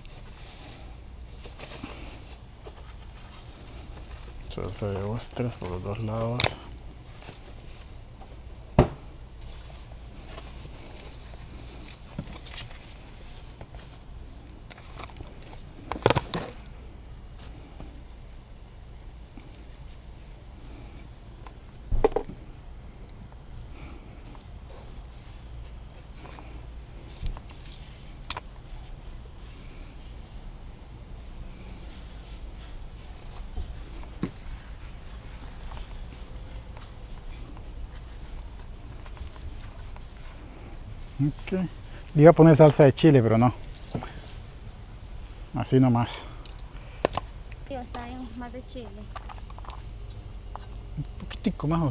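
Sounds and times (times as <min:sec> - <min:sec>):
insects trilling: 0:00.0 - 0:51.9
sharp knock: 0:08.8 - 0:09.0.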